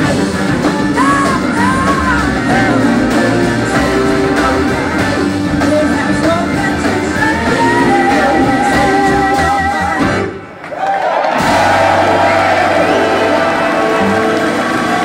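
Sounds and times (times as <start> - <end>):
blues-rock band playing live: 0.0 - 10.6, 11.4 - 15.0
person singing: 0.7 - 10.2.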